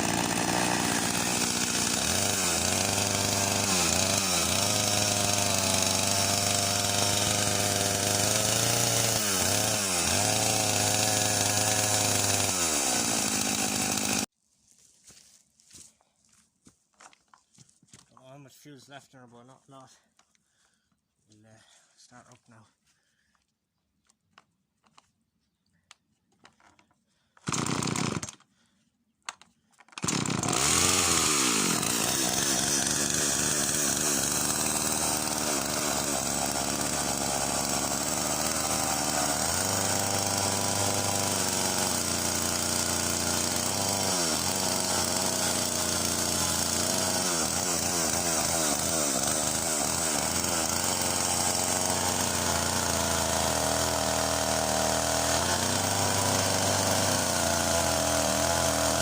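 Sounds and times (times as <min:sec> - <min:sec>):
chainsaw starting and running: 0:00.0 - 0:14.3, 0:26.5 - 0:28.7, 0:29.3 - 0:59.0.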